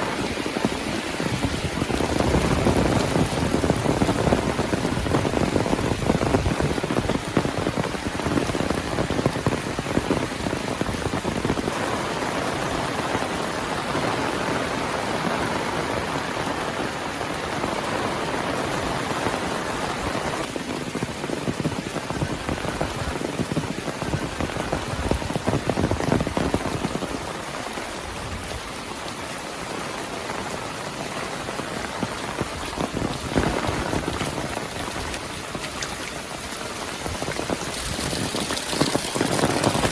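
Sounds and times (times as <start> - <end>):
heavy rain: 0.0 - 39.9
raindrops pattering on surfaces: 0.0 - 39.9.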